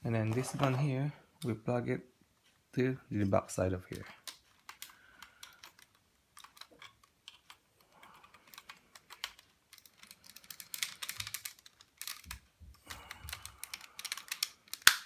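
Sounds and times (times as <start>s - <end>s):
plastic toy clicking and rattling: 3.9s - 15.0s.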